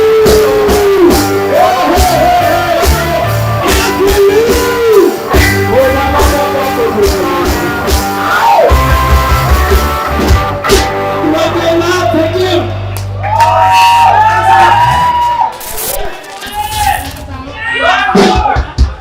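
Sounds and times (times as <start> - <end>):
person singing: 0.0 - 7.8
ska band playing live: 0.0 - 12.7.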